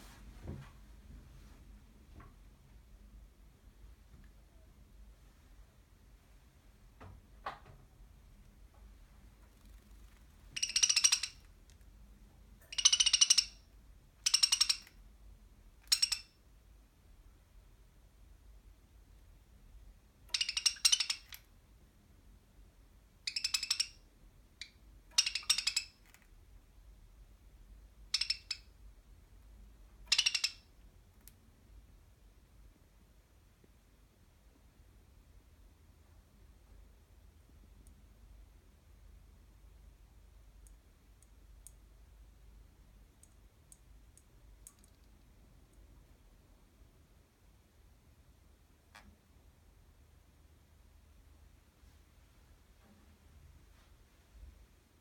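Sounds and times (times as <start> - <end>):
budgerigar chattering calls: 10.6 - 11.4, 12.7 - 13.6, 14.3 - 14.9, 20.3 - 21.3, 30.1 - 30.6
budgerigar chirp: 10.6 - 11.4, 12.7 - 13.6, 14.2 - 14.9, 20.3 - 21.3, 23.3 - 24.0, 25.1 - 26.0, 28.1 - 28.7, 30.1 - 30.6.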